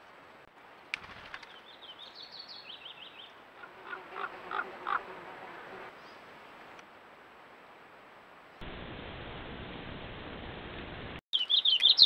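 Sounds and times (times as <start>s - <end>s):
lower louder bird calls: 11.4s - 12.0s
short high bird chirps: 11.4s - 12.0s.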